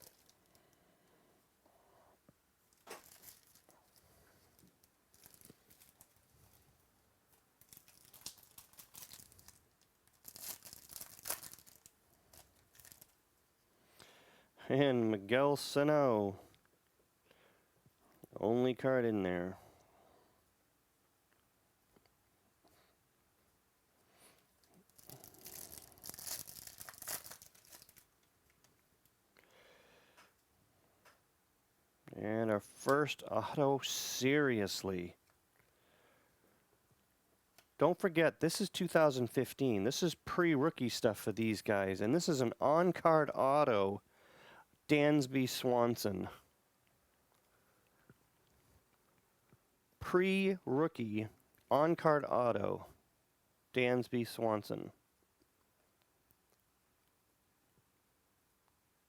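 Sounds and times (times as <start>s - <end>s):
wrapper tearing and crinkling: 0.0s - 0.6s, 2.7s - 6.6s, 7.6s - 13.2s, 24.8s - 28.7s
faint rustle of handling: 0.0s - 1.3s, 2.6s - 14.0s, 23.9s - 29.2s.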